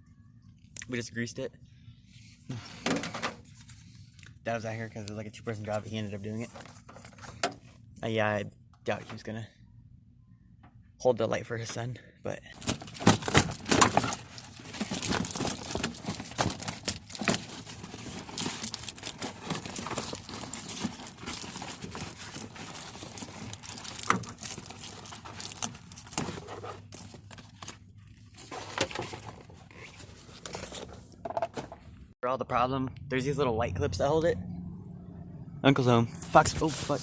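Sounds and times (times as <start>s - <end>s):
person speaking: 35.6s - 37.0s.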